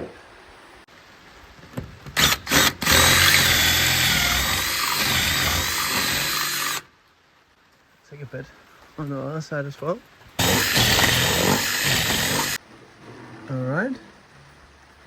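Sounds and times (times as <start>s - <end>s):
power tool motor whine: 2.2s - 6.9s, 10.4s - 12.6s.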